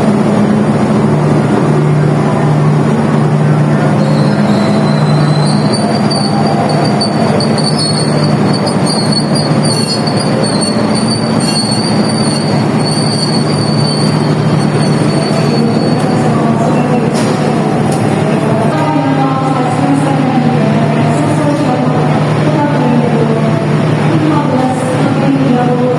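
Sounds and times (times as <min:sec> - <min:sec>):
train cars rumbling: 0:00.0 - 0:25.9
high wheel squeal: 0:04.0 - 0:16.2.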